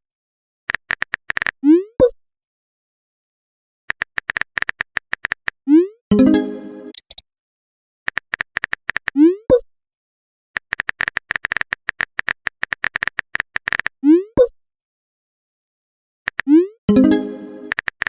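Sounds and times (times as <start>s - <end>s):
phone keyboard clicks: 0.7s - 1.6s, 3.9s - 5.5s, 6.9s - 7.2s, 8.1s - 9.1s, 10.6s - 13.9s, 16.3s - 16.5s, 17.7s - 18.0s.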